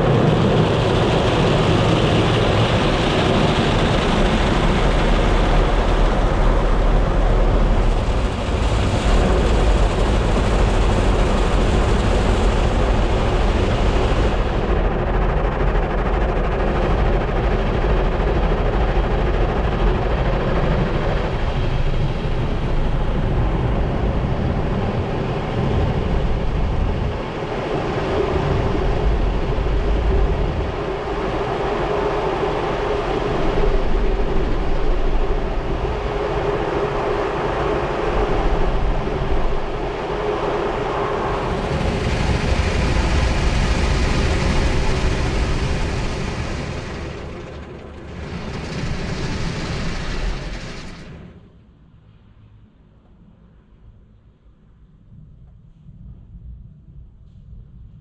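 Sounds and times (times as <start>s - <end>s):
car wash motors humming: 27.6s - 51.3s.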